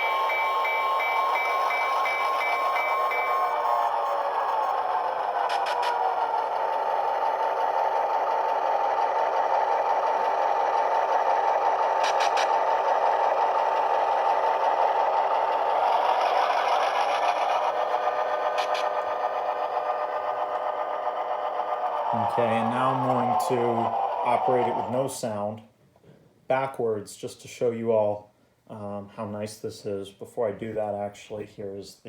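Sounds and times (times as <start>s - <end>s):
model motor and wheels running: 0.0s - 25.2s
diesel engine sound through speaker: 8.2s - 25.6s.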